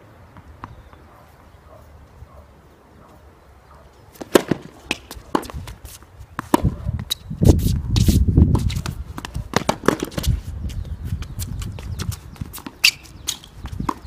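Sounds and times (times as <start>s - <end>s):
footsteps on court: 4.1s - 14.0s
tennis balls knocking: 4.2s - 7.2s, 8.6s - 10.4s, 12.4s - 14.0s.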